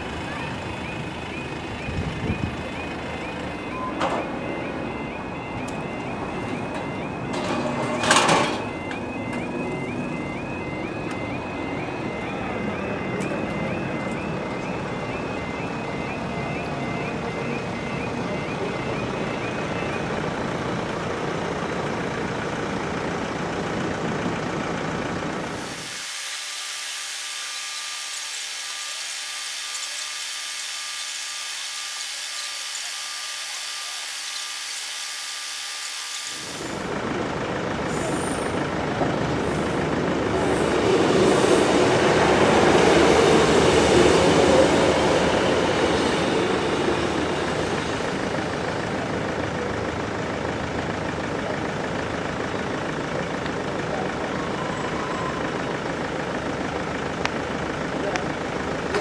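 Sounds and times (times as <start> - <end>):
train rumbling on rails: 36.6 - 59.0.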